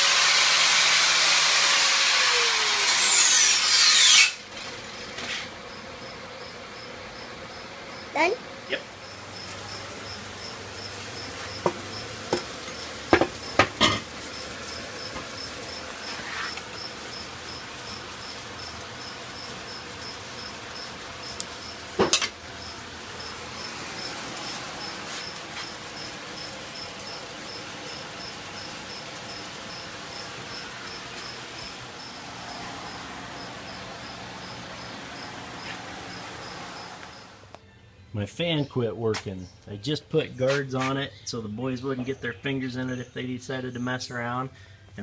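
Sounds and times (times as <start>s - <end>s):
cricket chirping: 9.0s - 21.8s, 22.6s - 37.3s.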